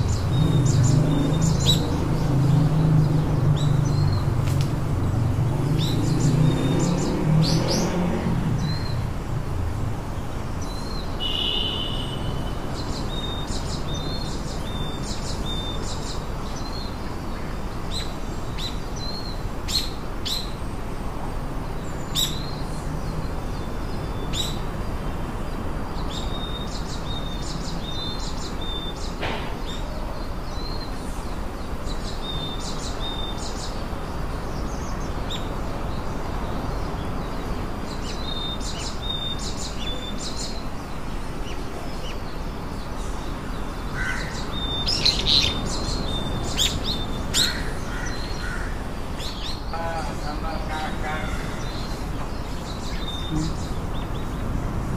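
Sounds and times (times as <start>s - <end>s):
small birds chirping: 0.0s - 54.9s.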